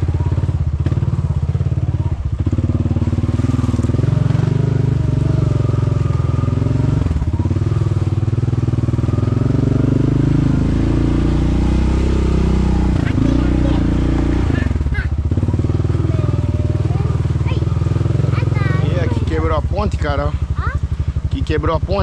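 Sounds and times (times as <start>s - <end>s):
quad bike engine revving: 0.0s - 22.0s.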